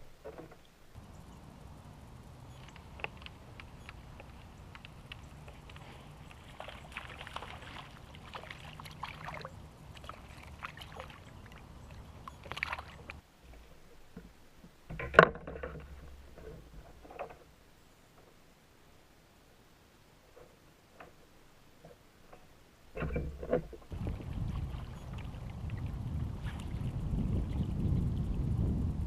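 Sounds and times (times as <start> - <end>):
water sloshing around kayak: 1.0 - 14.1, 23.0 - 28.0.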